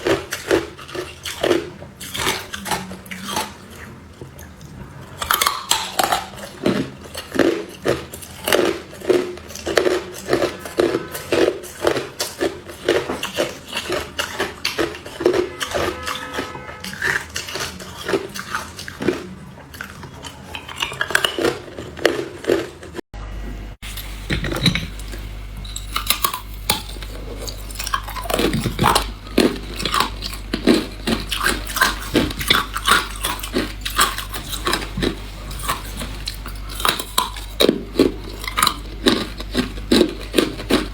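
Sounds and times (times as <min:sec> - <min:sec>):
ice crunching between teeth: 0:00.0 - 0:23.0, 0:25.8 - 0:40.9
low steady hum: 0:23.2 - 0:40.9.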